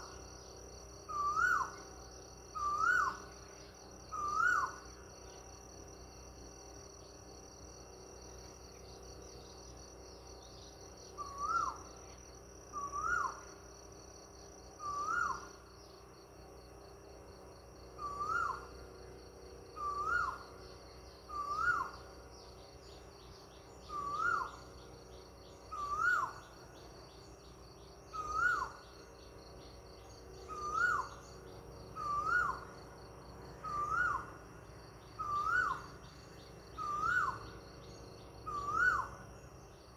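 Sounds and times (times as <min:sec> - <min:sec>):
insects chirring: 0:00.0 - 0:39.9
bird calling: 0:21.3 - 0:22.1, 0:23.8 - 0:24.7, 0:25.7 - 0:26.6, 0:28.1 - 0:29.1, 0:30.0 - 0:32.8, 0:33.6 - 0:34.4, 0:35.0 - 0:39.5.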